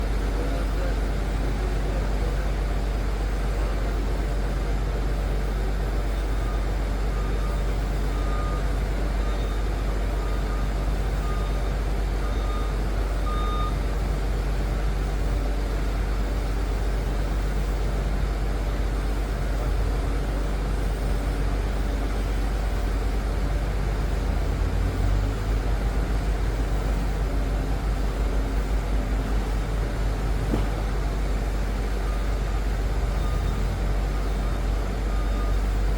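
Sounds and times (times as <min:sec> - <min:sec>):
diesel engine rumbling: 0:00.0 - 0:35.9
reversing alarm beeping: 0:06.2 - 0:14.1, 0:18.6 - 0:35.9.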